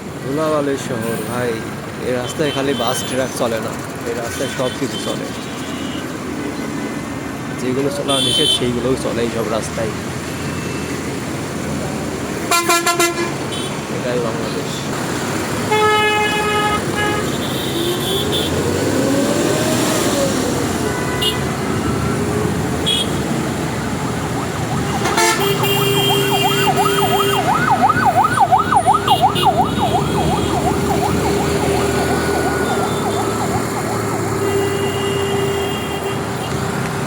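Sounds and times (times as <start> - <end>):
road traffic noise: 0.0 - 37.0
yelping siren: 23.6 - 34.5.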